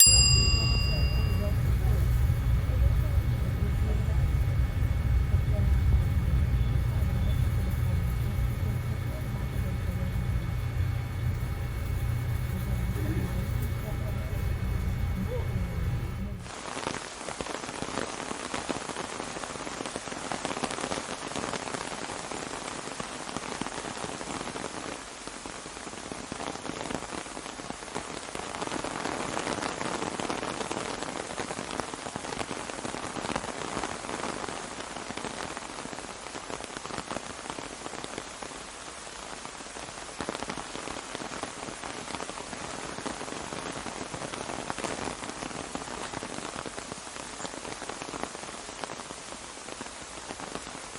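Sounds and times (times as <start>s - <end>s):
rain on an umbrella: 16.4s - 50.9s.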